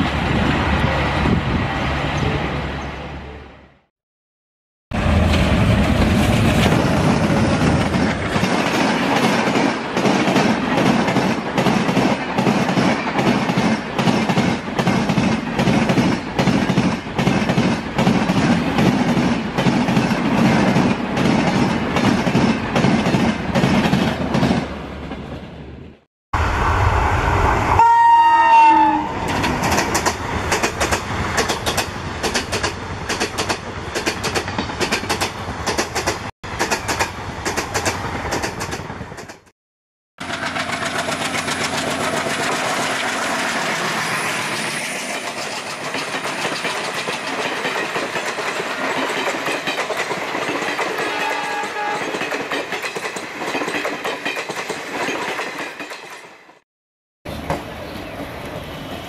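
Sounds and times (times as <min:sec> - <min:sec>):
train wheels clacking on rails: 0:05.8 - 0:24.7, 0:29.2 - 0:39.5, 0:40.2 - 0:56.6
train horn: 0:27.7 - 0:29.2, 0:50.9 - 0:52.2.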